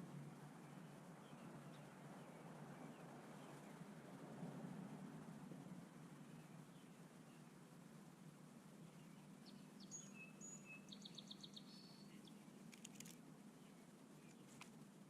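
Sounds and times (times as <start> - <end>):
faint songbird chirps: 0.0 - 4.2, 5.6 - 15.0
low background hum: 0.0 - 15.0
soft clicks: 12.7 - 13.2.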